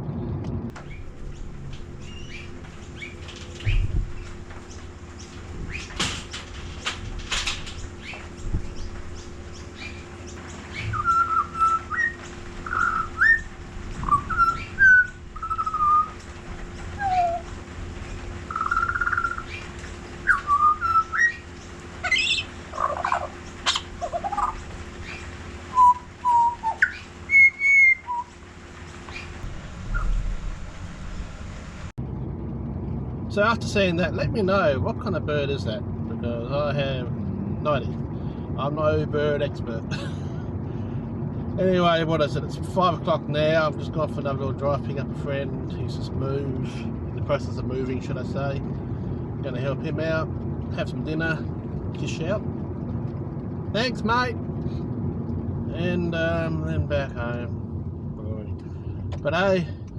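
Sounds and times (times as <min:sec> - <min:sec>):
short noisy rustles: 0:00.5 - 0:18.6
songbird whistled notes: 0:10.7 - 0:16.2, 0:17.0 - 0:17.5, 0:18.5 - 0:28.3.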